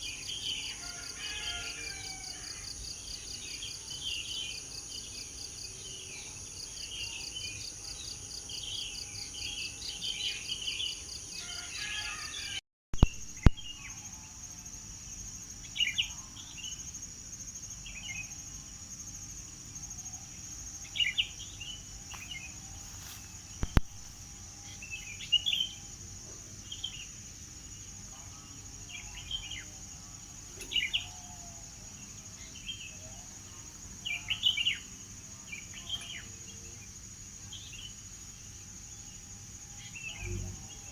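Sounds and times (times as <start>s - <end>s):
high-pitched insect drone: 6.2s - 40.9s
sharp clicks: 23.6s - 24.0s.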